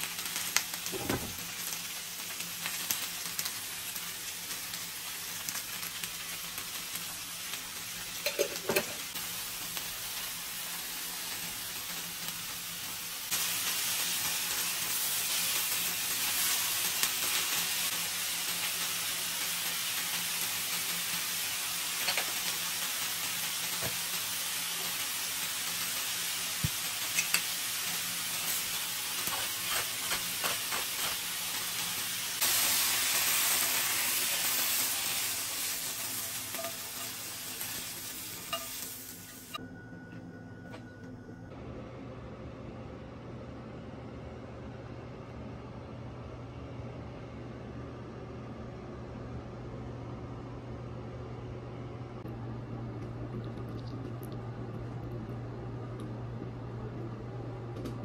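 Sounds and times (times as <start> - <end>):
cabbage sizzling in a skillet: 0.0 - 39.6.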